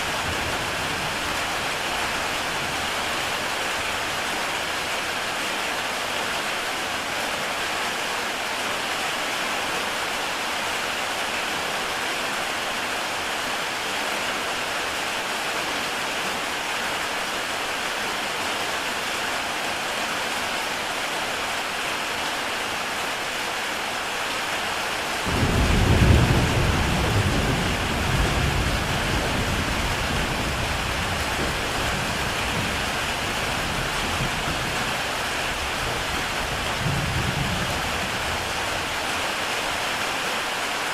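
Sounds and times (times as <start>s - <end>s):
heavy rain on a tile roof: 0.0s - 40.9s
thunder rumbling: 25.2s - 38.9s.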